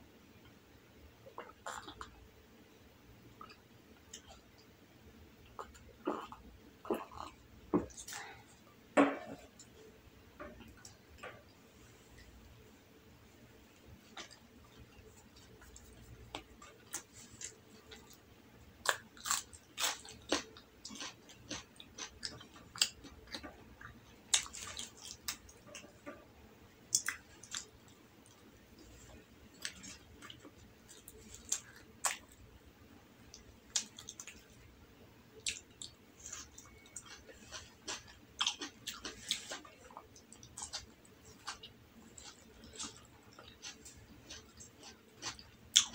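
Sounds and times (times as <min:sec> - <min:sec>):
person chewing with mouth clicks: 0:18.8 - 0:26.2, 0:26.9 - 0:27.7, 0:35.4 - 0:45.9.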